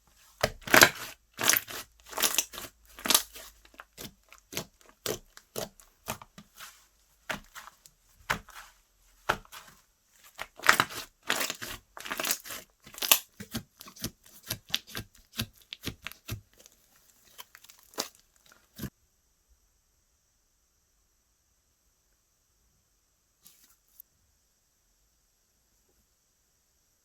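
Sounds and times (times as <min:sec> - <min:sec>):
slime popping and crackling: 0:00.4 - 0:09.7, 0:10.3 - 0:18.9.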